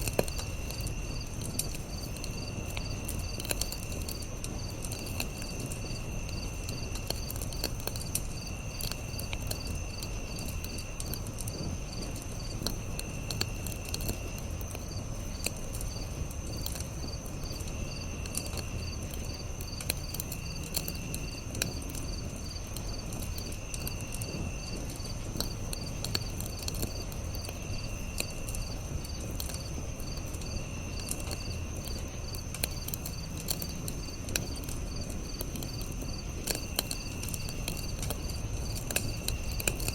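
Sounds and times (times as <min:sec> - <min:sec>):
campfire crackling and popping: 0:00.0 - 0:39.9
crickets chirping: 0:00.0 - 0:39.9
insect trills: 0:00.0 - 0:39.9.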